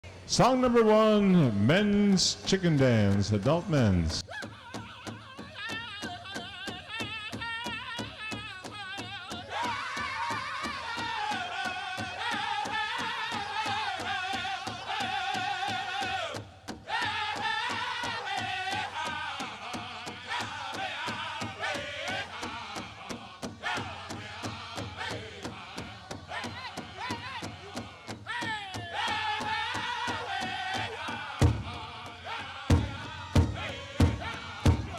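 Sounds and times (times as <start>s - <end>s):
voices singing in unison: 0.9s - 34.9s
large drum beat: 26.5s - 34.9s.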